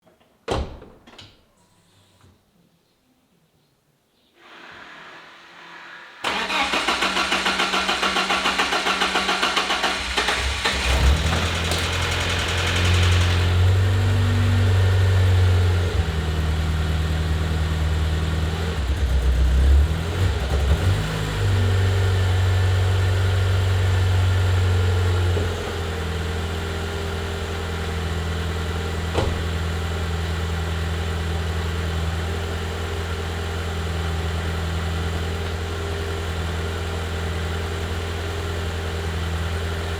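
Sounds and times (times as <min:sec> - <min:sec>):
engine starter cranking: 0:06.2 - 0:13.8
car engine idling: 0:06.2 - 0:20.6.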